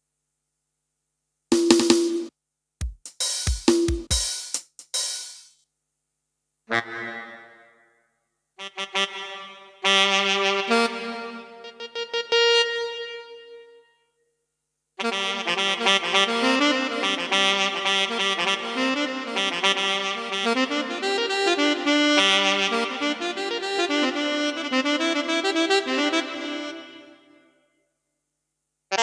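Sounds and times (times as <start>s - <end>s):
keyboard saxophone melody: 6.7s - 7.9s, 8.6s - 14.0s, 15.0s - 27.6s.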